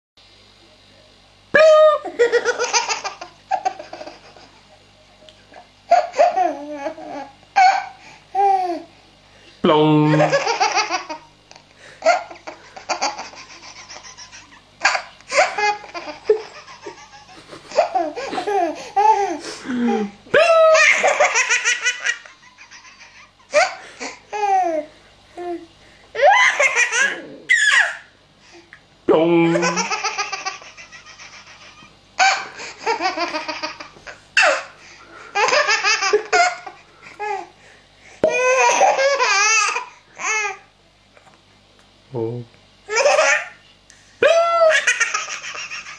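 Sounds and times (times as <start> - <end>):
baby laughing: 1.6 - 4.6, 5.9 - 8.9, 10.2 - 11.3, 12.0 - 25.6, 26.2 - 28.1, 29.5 - 34.7, 35.4 - 37.5, 38.3 - 40.6, 42.9 - 43.6, 44.3 - 45.9.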